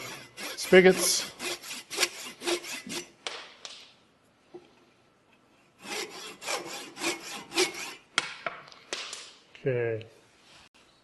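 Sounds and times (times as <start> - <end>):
hand saw rasping through wood: 0.0 - 3.1, 5.8 - 8.0.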